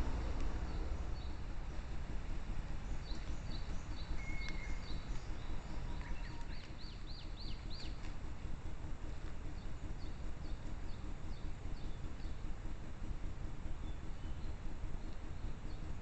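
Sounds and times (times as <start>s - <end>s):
steady low background noise: 0.0s - 16.0s
small birds calling: 2.6s - 8.2s.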